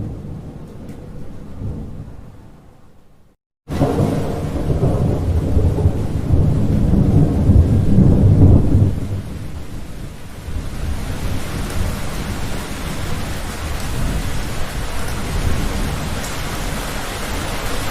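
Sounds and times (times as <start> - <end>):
thunder rumbling: 0.0 - 2.7, 3.7 - 17.9
steady rain: 3.7 - 17.9.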